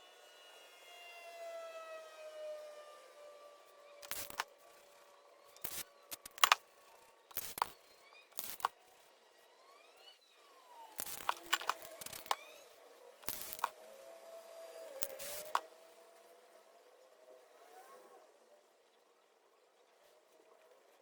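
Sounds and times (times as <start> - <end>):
spray paint can hissing: 4.0 - 4.5, 5.6 - 6.6, 7.3 - 8.7, 11.0 - 12.4, 13.2 - 13.7, 15.0 - 15.7.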